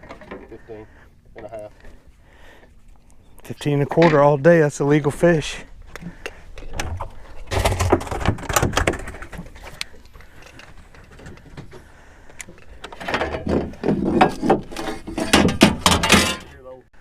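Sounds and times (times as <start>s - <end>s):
fish knocking and flapping: 6.7s - 11.7s.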